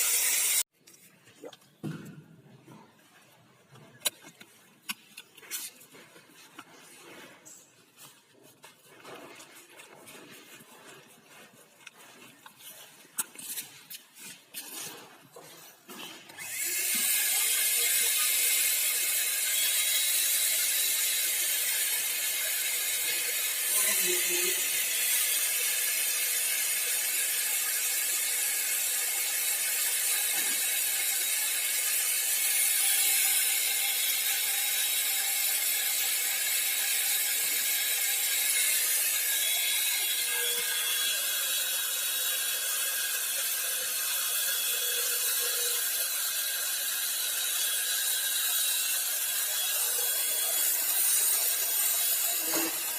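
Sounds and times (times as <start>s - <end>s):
paint sprayer motor hissing: 0.0s - 0.7s, 16.3s - 52.9s.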